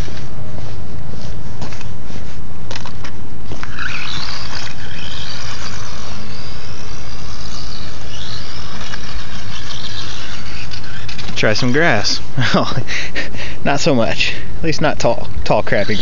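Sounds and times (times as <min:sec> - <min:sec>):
electric motor whining: 0:00.0 - 0:16.0
sharp ticks: 0:03.5 - 0:12.2.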